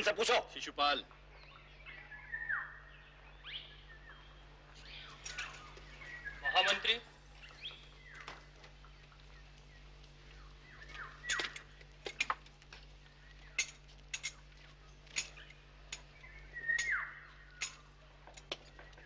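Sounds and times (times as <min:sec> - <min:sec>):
birds chirping: 0:00.0 - 0:19.0
descending whistled bird call: 0:01.4 - 0:08.3, 0:10.3 - 0:11.7, 0:15.4 - 0:17.8.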